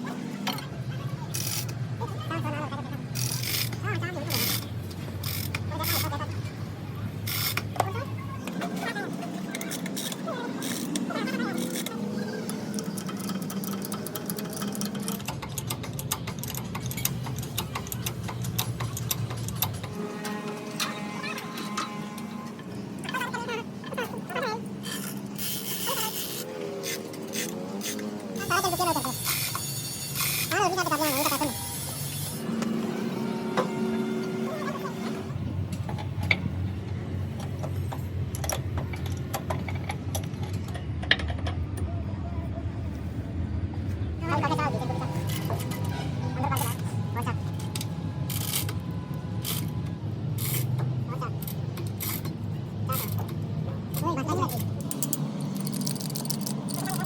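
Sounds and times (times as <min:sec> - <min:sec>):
low mechanical rumble: 0:00.0 - 0:57.0
sharp clicks and knocks: 0:09.5 - 0:20.0, 0:35.7 - 0:41.9
rapid irregular clicking: 0:09.6 - 0:20.0, 0:50.4 - 0:57.0.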